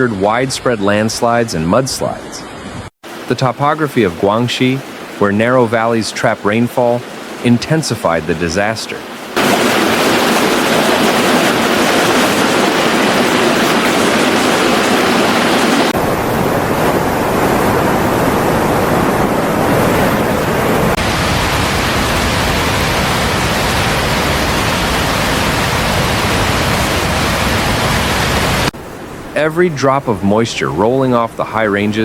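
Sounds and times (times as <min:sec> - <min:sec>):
floodwater rushing: 0:00.0 - 0:32.0.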